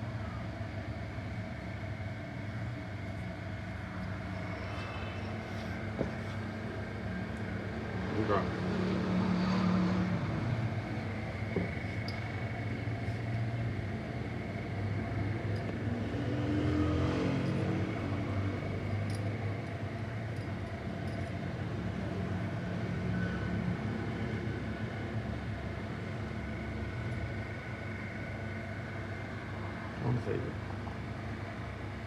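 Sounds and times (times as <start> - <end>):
car engine running and revving: 15.6 - 19.8.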